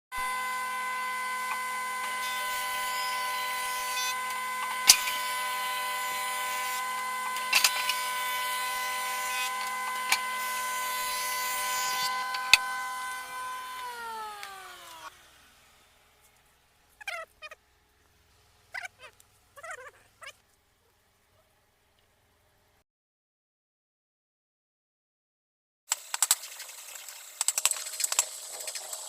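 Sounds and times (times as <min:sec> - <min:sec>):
power tool motor whining: 0:00.1 - 0:16.4.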